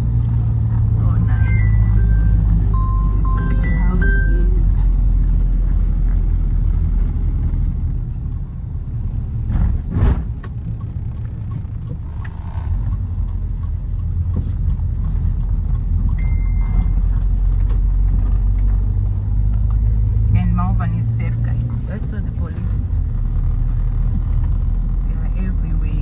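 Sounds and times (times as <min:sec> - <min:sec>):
car rumbling along road: 0:00.0 - 0:26.0
short high beep: 0:01.3 - 0:04.6, 0:16.2 - 0:17.0.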